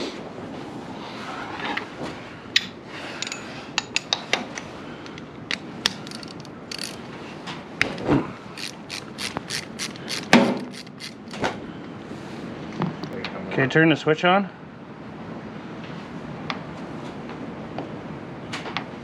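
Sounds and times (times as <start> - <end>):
ratchet wrench strokes: 5.5 - 7.1, 7.9 - 11.4.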